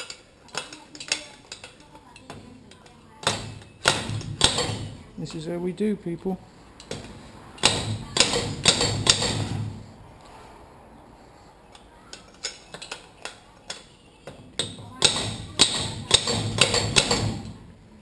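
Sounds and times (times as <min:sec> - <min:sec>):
metal ringing: 0:00.0 - 0:05.1
hammer striking metal: 0:03.2 - 0:05.0, 0:06.8 - 0:09.8, 0:13.7 - 0:17.6.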